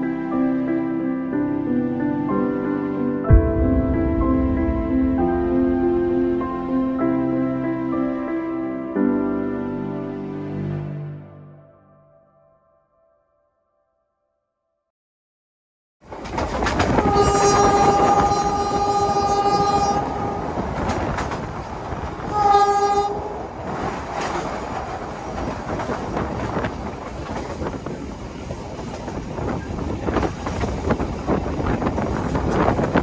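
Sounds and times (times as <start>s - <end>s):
train wheels on rails: 16.0s - 33.0s
train horn blasts: 16.8s - 21.2s, 22.2s - 23.5s.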